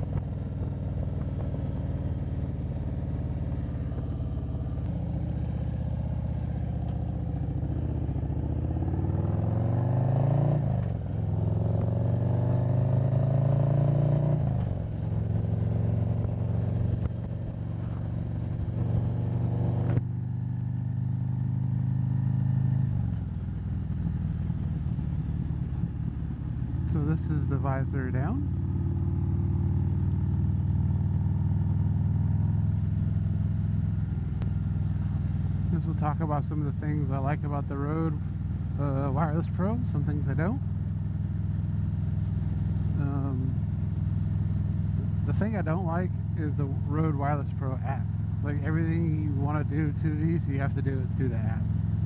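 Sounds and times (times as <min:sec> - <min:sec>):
motorcycle engine accelerating: 0:00.0 - 0:52.0.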